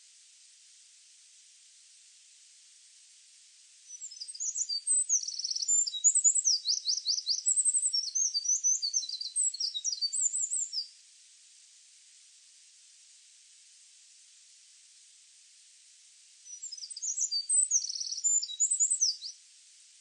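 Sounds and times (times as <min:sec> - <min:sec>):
faint steady hiss: 0:00.0 - 0:20.0
songbird singing: 0:03.9 - 0:11.0, 0:16.4 - 0:19.4.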